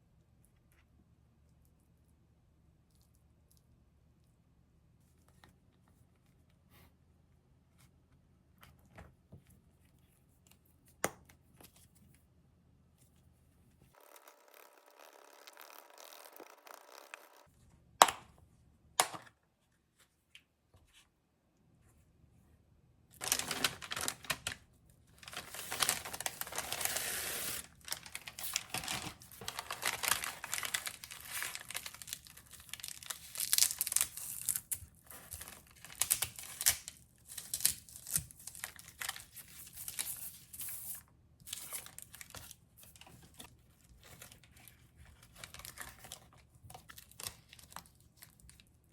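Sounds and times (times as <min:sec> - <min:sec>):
packaging crinkling and tearing: 0:23.2 - 0:40.9, 0:41.5 - 0:48.7.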